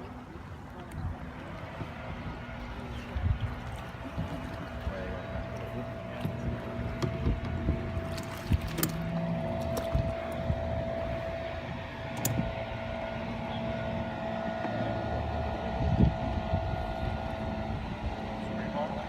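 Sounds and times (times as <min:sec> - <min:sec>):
small motor humming: 0:01.6 - 0:19.0
wind noise on microphone: 0:02.0 - 0:04.6, 0:06.3 - 0:12.8, 0:15.5 - 0:18.3.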